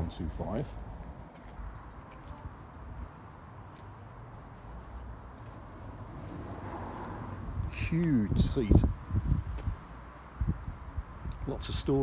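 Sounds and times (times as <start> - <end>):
small bird chirping: 1.2 - 3.3, 5.7 - 6.9, 8.8 - 9.6.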